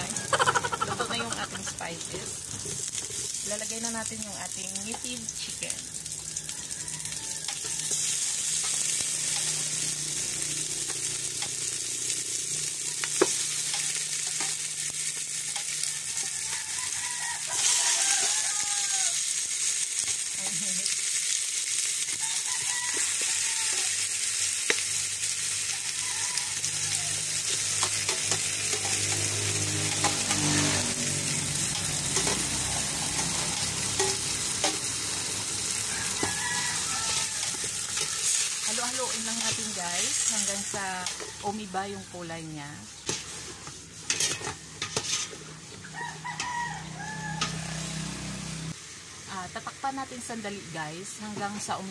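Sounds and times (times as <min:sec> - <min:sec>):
chicken sizzling in hot oil: 0:00.0 - 0:51.9.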